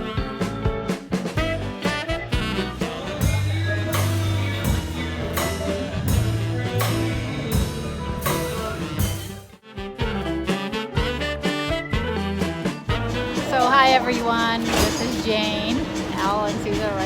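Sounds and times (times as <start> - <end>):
swing jazz with horns and drums: 0.0 - 17.0.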